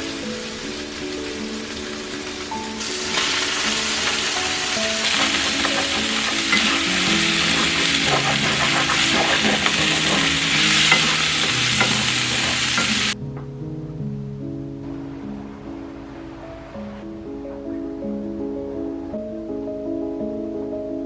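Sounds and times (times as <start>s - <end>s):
food sizzling in frying pan: 0.0s - 13.2s
utensil clicking against pan: 5.0s - 13.2s.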